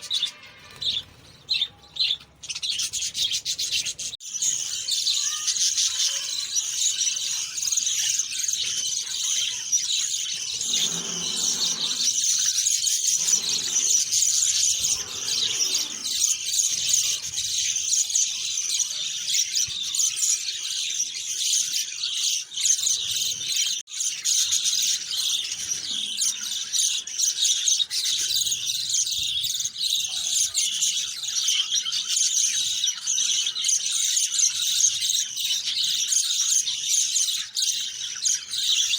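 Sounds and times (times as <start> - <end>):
chorus of small birds chirping: 0.0 - 38.9.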